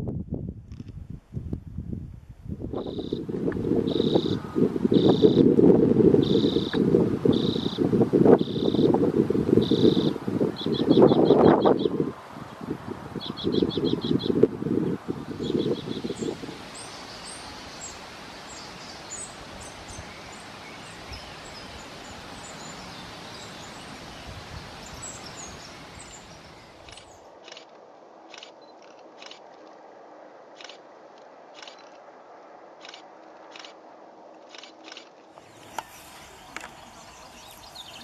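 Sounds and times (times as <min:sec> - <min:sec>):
outdoor background hiss: 0:00.0 - 0:38.0
small bird chirps: 0:35.4 - 0:38.0.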